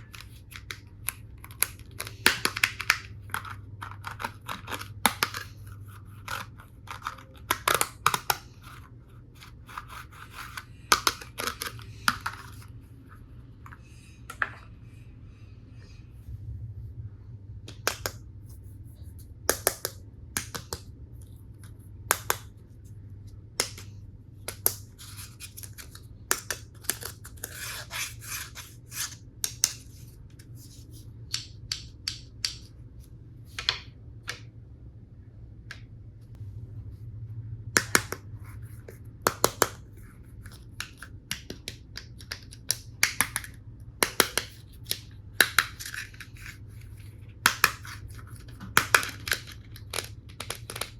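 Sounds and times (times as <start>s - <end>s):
faint low hum: 0.0s - 50.9s
plastic toy pieces clicking: 48.8s - 50.9s.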